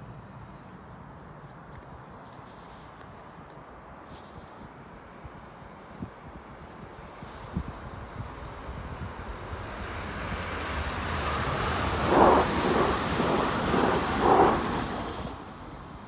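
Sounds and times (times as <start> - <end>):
train passing: 8.6 - 16.0.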